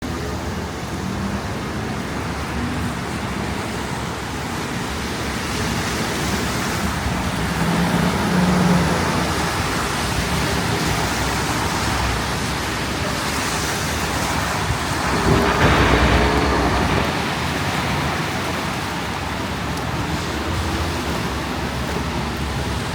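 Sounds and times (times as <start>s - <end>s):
street traffic: 0.0s - 22.9s
vehicle engine hum: 0.0s - 22.9s
wind roaring on microphone: 5.9s - 22.9s.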